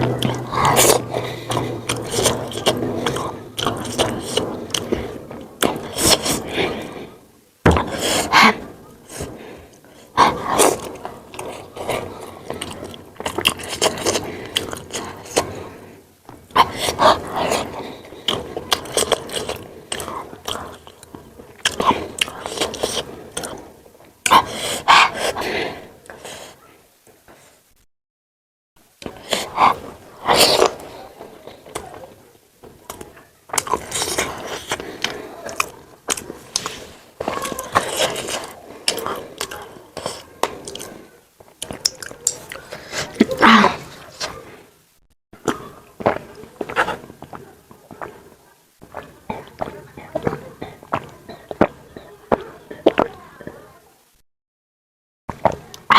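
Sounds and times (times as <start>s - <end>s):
close chewing and mouth sounds: 0.0s - 27.6s, 28.9s - 44.7s, 45.4s - 53.9s, 55.3s - 55.9s
loud slurp or breath: 0.1s - 7.1s, 29.0s - 31.7s.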